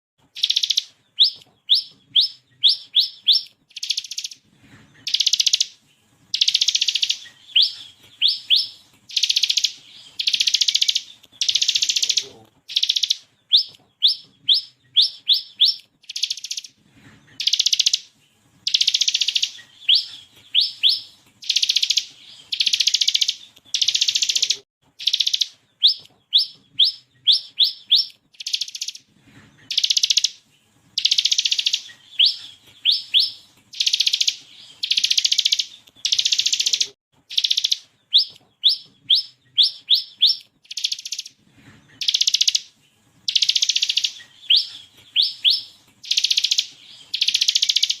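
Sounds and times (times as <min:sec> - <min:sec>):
bird singing sharp rising notes: 0:05.0 - 0:29.0.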